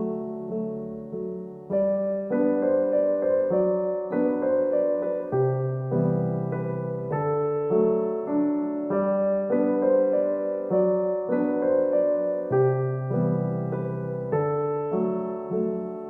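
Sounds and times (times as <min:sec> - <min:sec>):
gentle solo piano: 0:00.0 - 0:16.0.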